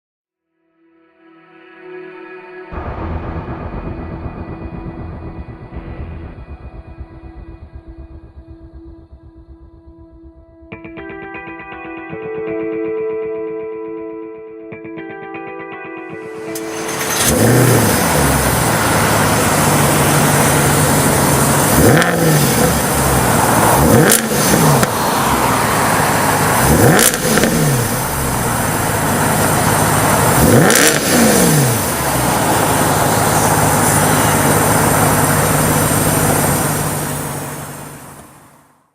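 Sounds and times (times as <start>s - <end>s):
car engine idling and revving: 2.8s - 10.7s, 16.5s - 38.8s.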